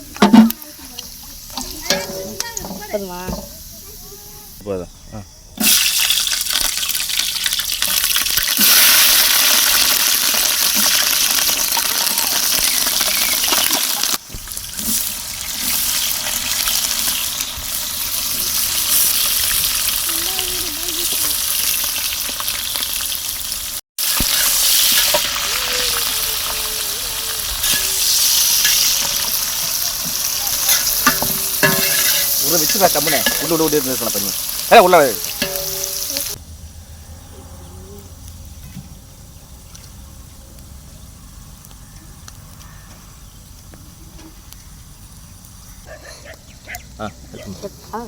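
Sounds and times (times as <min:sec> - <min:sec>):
food sizzling in hot oil: 0:00.0 - 0:04.6, 0:05.6 - 0:36.4.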